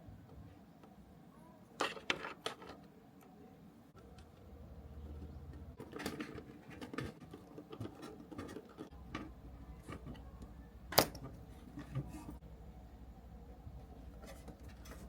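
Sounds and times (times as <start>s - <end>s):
small parts and tools handled: 1.8s - 2.9s, 5.2s - 12.4s, 14.1s - 15.0s.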